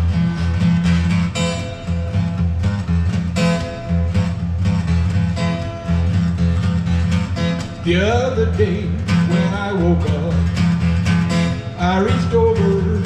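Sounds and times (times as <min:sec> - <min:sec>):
strummed acoustic guitar: 0:00.0 - 0:13.0
person singing: 0:07.9 - 0:10.4, 0:11.8 - 0:13.0.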